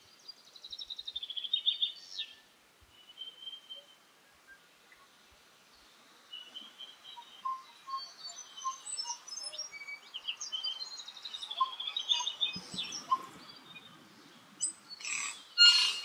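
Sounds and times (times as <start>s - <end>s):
birds whistling and chirping: 6.4s - 16.0s
harsh wheezy bird call: 15.0s - 16.0s.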